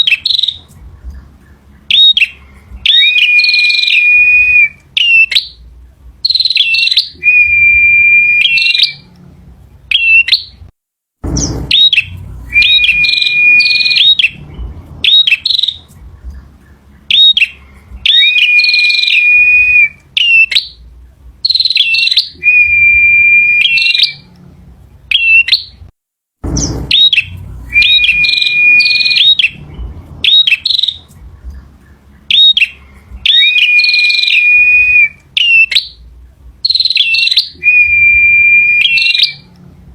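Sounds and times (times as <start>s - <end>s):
bird singing sharp notes: 0.0s - 5.6s, 6.2s - 9.2s, 9.9s - 24.4s, 25.1s - 39.6s
low thump: 11.2s - 16.6s, 26.4s - 31.8s.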